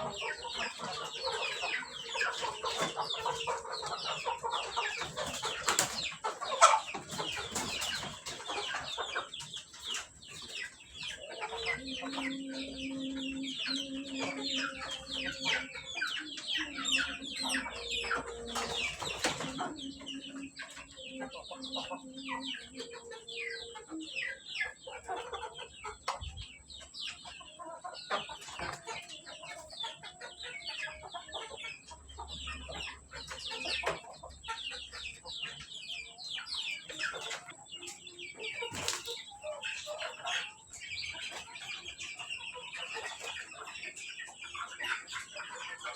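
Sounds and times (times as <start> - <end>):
chickens clucking and cheeping: 0.0 - 45.9.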